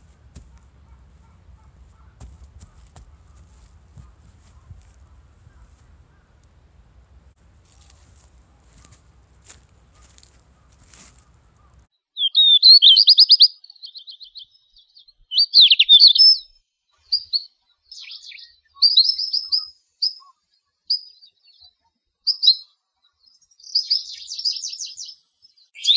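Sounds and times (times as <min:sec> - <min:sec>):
songbird singing: 0:00.0 - 0:25.9.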